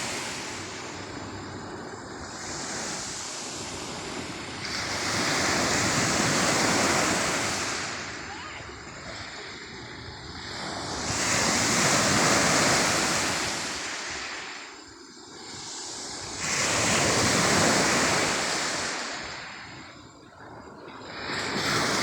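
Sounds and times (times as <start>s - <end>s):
sea waves breaking on shore: 0.0s - 22.0s.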